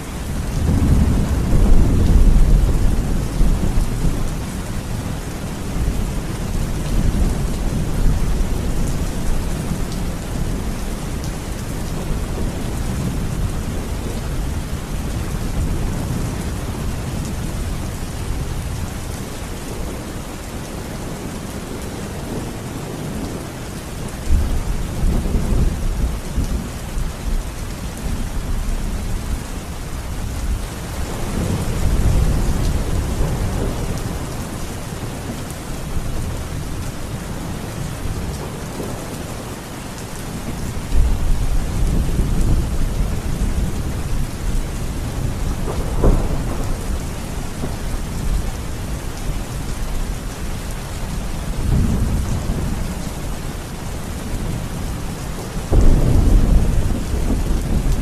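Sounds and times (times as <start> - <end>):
heavy rain: 0.0 - 58.0
rolling thunder: 0.2 - 19.2, 40.3 - 50.4, 55.6 - 58.0
sharp crack of thunder: 45.0 - 48.4, 55.6 - 58.0.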